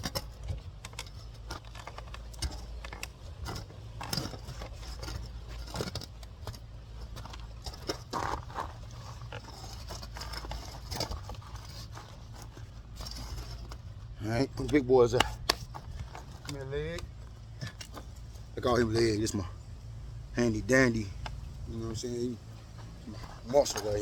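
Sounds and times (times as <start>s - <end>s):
hands and tools clicking scraping: 0.0s - 24.0s
steady low hum: 0.0s - 24.0s.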